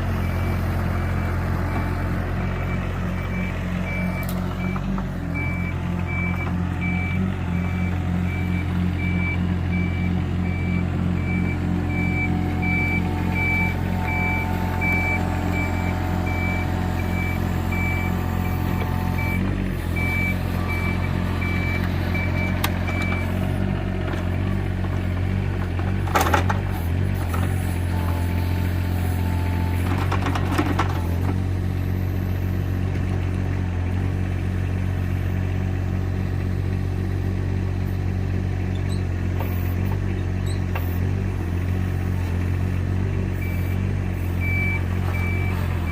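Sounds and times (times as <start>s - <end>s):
diesel engine running: 0.0s - 45.9s
travel alarm beeping: 5.4s - 19.4s.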